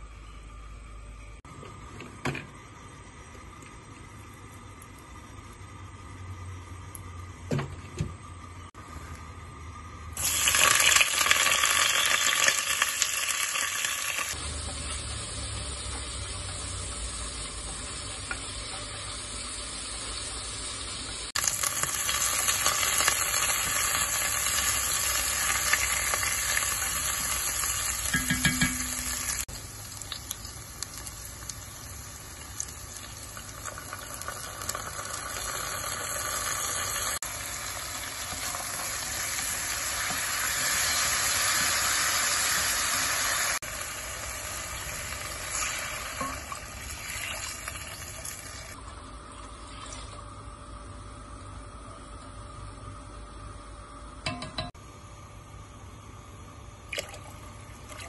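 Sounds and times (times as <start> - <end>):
food sizzling in hot oil: 10.2 - 48.8.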